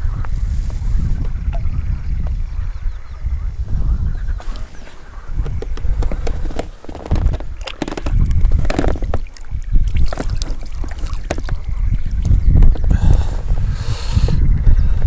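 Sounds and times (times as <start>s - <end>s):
wind buffeting microphone: 0.0s - 15.0s
gear handling knocks and clicks: 5.4s - 9.3s.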